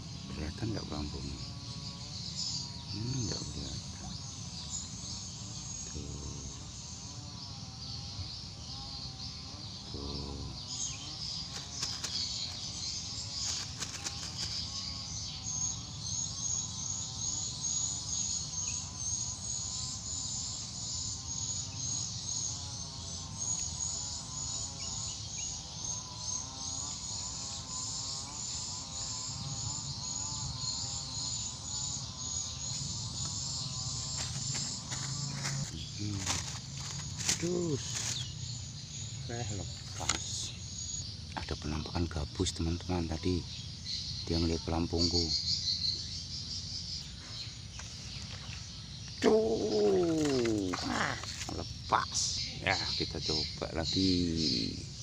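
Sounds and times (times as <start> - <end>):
high-pitched insect chirp: 0.0 - 55.0
low wavering insect trill: 0.0 - 55.0.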